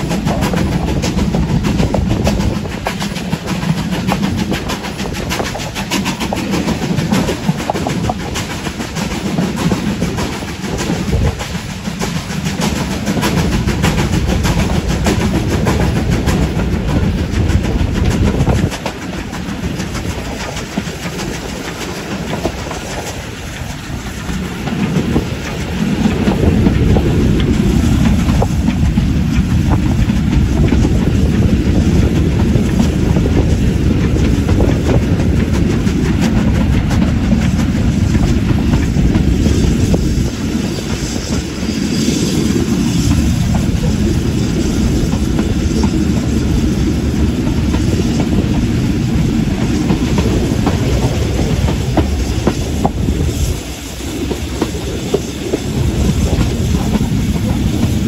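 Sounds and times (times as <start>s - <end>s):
train wheels clattering over rail joints: 0.0s - 58.0s.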